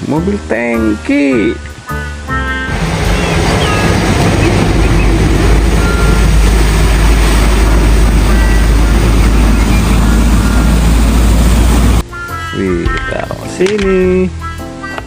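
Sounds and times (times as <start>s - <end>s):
truck engine rumbling: 0.0s - 13.5s
engine rattle: 2.7s - 12.0s.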